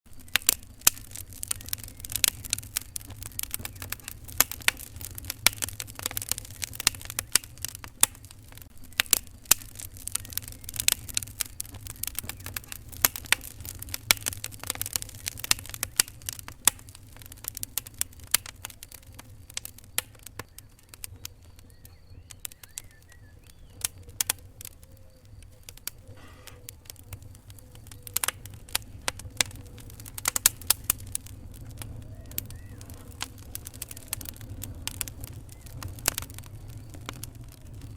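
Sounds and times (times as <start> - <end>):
wood fire popping and snapping: 0.0 - 37.9
low steady rumble: 0.1 - 37.9.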